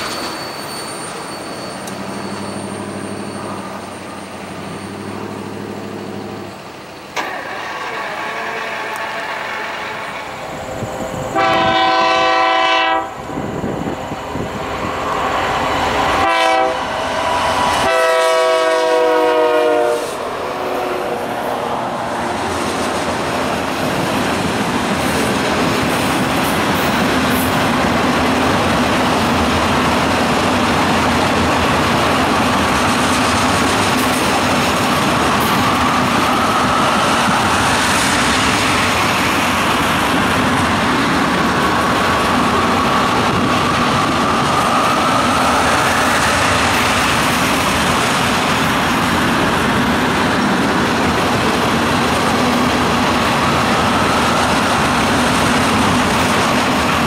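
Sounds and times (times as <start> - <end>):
train wheels on rails: 0.0 - 57.0
locomotive horn blasts: 8.0 - 10.3, 11.3 - 13.3, 16.0 - 17.1, 17.8 - 20.2.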